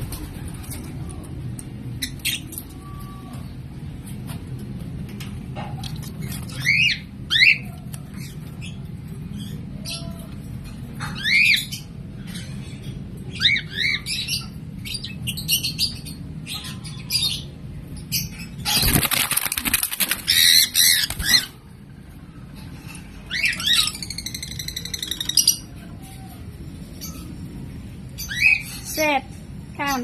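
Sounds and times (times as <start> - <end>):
lovebirds chirping shrilly: 18.1 - 21.6
wings flapping: 18.7 - 21.5.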